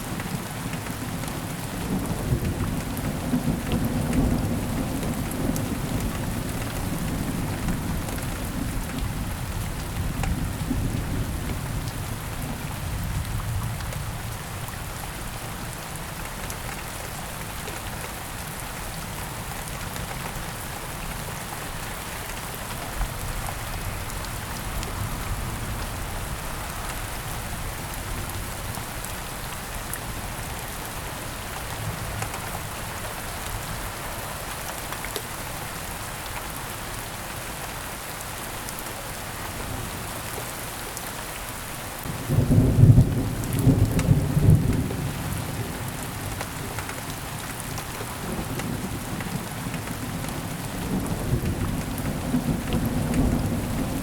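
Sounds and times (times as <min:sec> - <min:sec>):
heavy rain falling: 0:00.0 - 0:54.0
low rumble of thunder: 0:01.8 - 0:14.9, 0:42.0 - 0:54.0.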